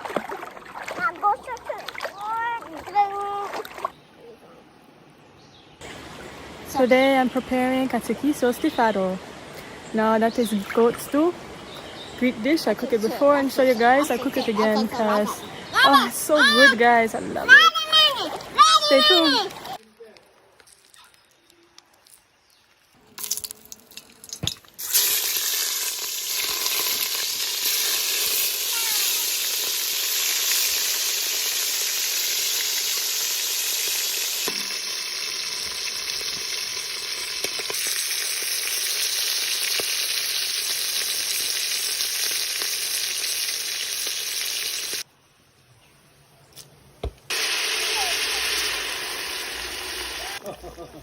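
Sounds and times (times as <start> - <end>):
food sizzling in hot oil: 24.8 - 45.1, 47.3 - 50.4.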